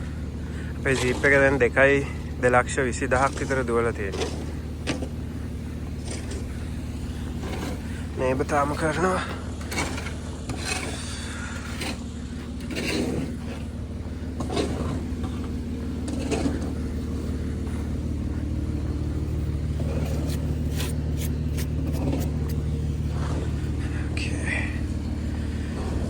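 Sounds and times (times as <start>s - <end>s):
engine idling: 0.0s - 26.0s
scraping strokes: 16.2s - 23.2s.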